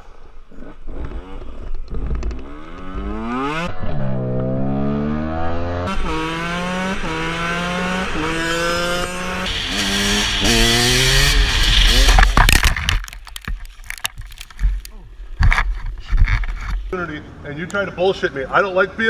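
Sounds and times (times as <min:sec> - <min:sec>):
motorcycle engine accelerating: 0:00.2 - 0:14.5.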